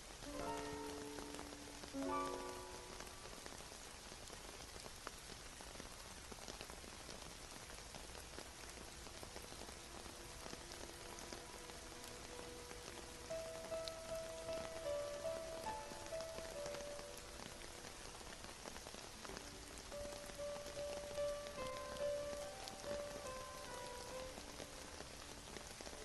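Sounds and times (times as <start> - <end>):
steady rain falling: 0.0 - 26.0
faint music notes: 0.2 - 3.4, 9.2 - 26.0.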